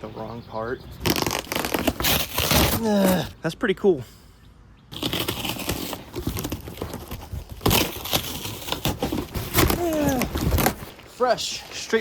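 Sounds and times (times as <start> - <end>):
packaging being torn open: 1.0 - 3.2, 5.0 - 10.9
packaging crinkling and rustling: 1.0 - 3.2, 5.0 - 11.1.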